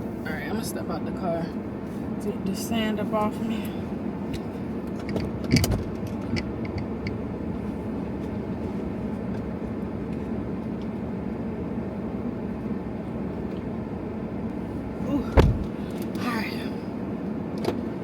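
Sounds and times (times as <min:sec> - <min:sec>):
car idling with air conditioning: 0:00.0 - 0:18.0
knock: 0:15.4 - 0:15.7.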